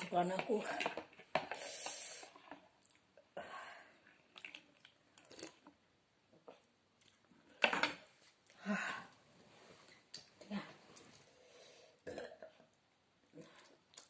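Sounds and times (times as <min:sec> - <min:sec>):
soft chewing: 0:02.3 - 0:03.3, 0:06.4 - 0:07.5, 0:13.3 - 0:14.0
breathy sounds: 0:08.6 - 0:09.2.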